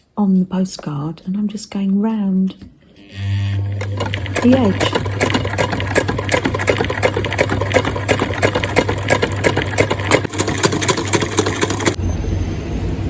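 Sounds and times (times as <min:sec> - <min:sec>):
sewing machine motor hum: 0:03.0 - 0:12.0
sewing machine needle strokes: 0:03.2 - 0:12.0.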